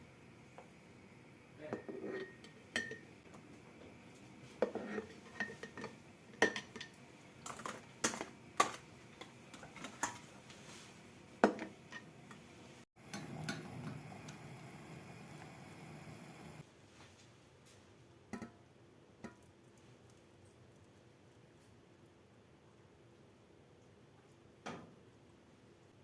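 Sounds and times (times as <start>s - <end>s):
dishes and utensils clinking: 1.8s - 3.1s, 4.6s - 10.3s.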